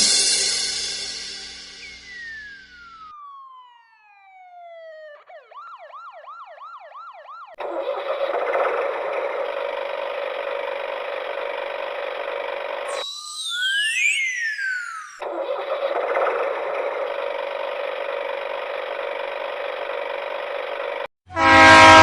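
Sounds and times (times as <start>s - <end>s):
electronic gliding tones: 0.0s - 3.5s, 12.8s - 19.8s
toy falling whistle: 1.5s - 3.4s, 12.9s - 15.2s
toy engine-like whir: 1.6s - 3.6s, 7.6s - 21.1s
toy siren warble: 1.6s - 21.0s.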